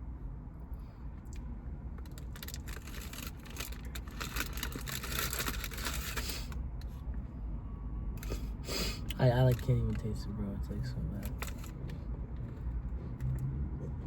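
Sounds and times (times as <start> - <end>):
food crackling and rustling: 2.1 - 6.5.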